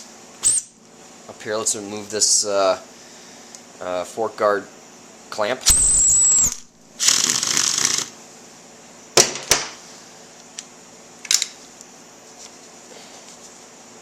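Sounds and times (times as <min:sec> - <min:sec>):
hand tools noisy burst: 0:05.7 - 0:08.1.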